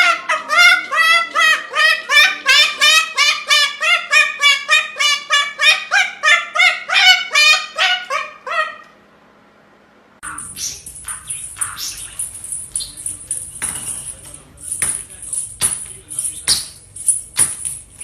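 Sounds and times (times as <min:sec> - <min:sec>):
parrot honking squawks: 0:00.0 - 0:09.0, 0:10.2 - 0:13.0.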